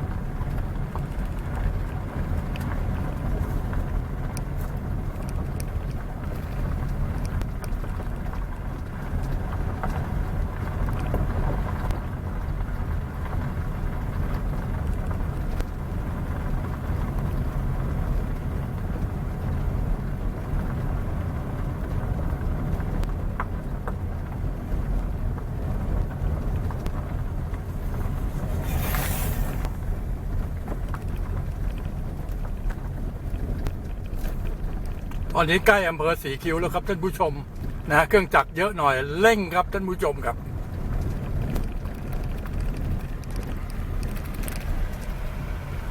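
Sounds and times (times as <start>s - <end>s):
vehicle engine and road rumble: 0.0s - 45.9s
short hiss: 28.5s - 29.8s.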